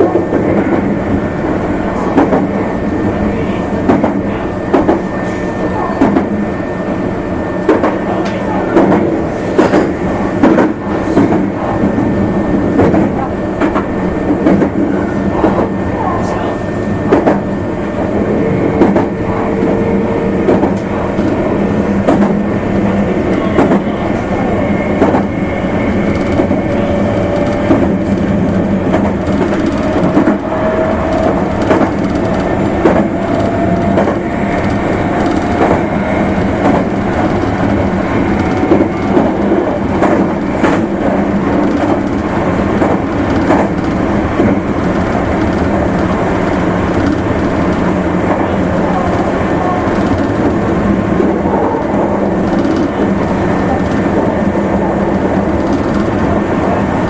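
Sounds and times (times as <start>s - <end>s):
electric train rumble: 0.0s - 57.0s
train motor whine: 0.0s - 57.0s
wheels clacking over rail joints: 18.8s - 56.5s.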